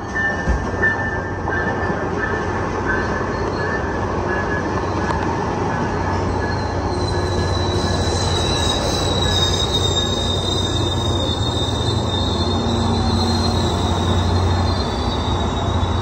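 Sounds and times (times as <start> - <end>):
train wheels rumbling on rail: 0.0 - 16.0
high wheel squeal: 5.8 - 16.0.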